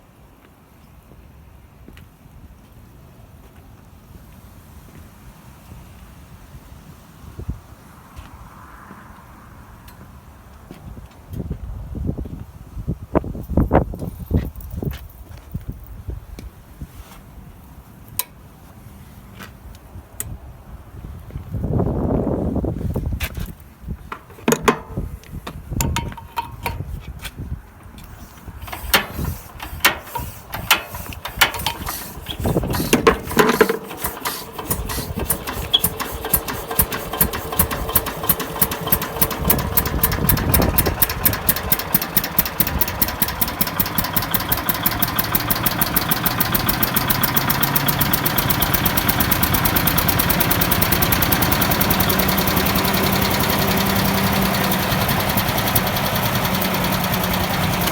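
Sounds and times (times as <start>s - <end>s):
engine starting up: 28.1s - 57.9s.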